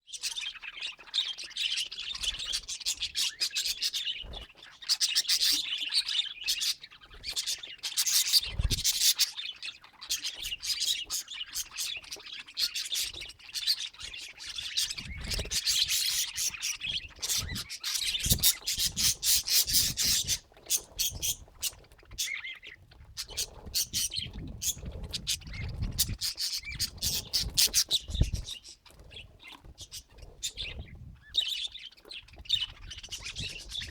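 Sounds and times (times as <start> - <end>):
budgerigars chattering: 0.1 - 33.9.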